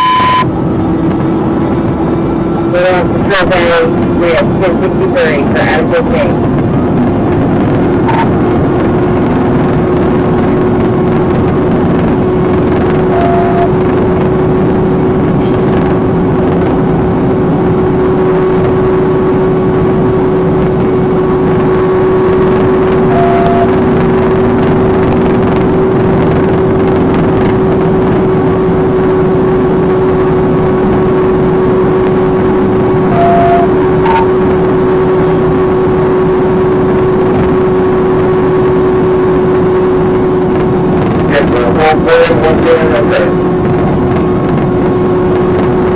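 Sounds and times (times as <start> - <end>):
short electronic beep: 0.0 - 0.5, 8.1 - 8.3, 13.1 - 13.8, 23.1 - 23.8, 33.1 - 34.3
vehicle running with humming tone: 0.0 - 45.9.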